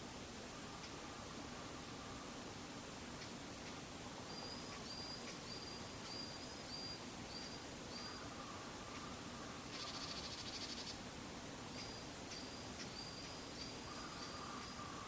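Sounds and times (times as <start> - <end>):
faint high whistled bird calls: 4.2 - 11.0, 11.8 - 15.0.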